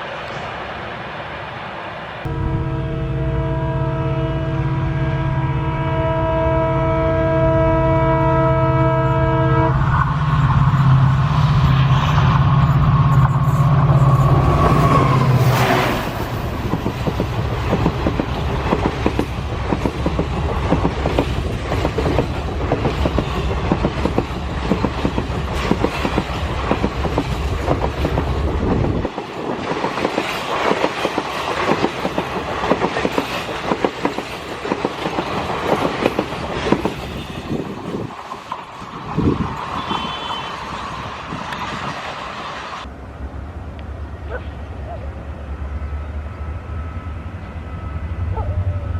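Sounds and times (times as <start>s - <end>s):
low train rumble: 0.0s - 48.9s
train horn: 2.2s - 10.0s, 23.1s - 23.8s, 36.8s - 38.1s, 39.7s - 40.9s
train wheels clacking over rail joints: 14.2s - 38.7s.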